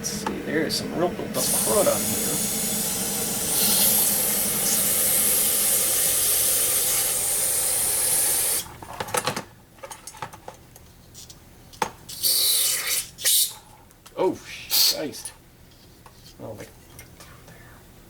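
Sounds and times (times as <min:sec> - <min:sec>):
aerosol spray hissing: 0:01.4 - 0:08.6.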